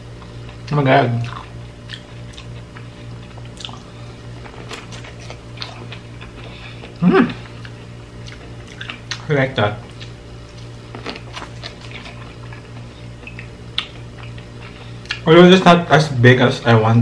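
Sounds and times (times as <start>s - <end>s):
steady low hum: 0.0s - 17.0s
chewing corn on the cob: 0.1s - 15.3s
short vocal sound: 7.0s - 7.5s.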